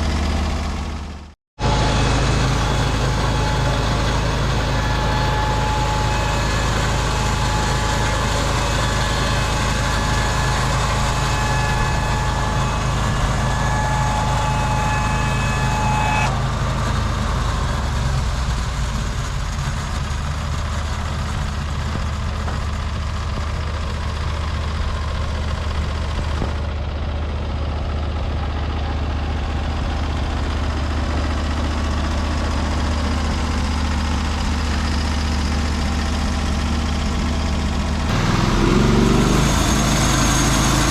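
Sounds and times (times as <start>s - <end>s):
sawmill engine running: 0.0s - 40.9s
high saw whine: 1.6s - 19.2s, 29.5s - 40.9s.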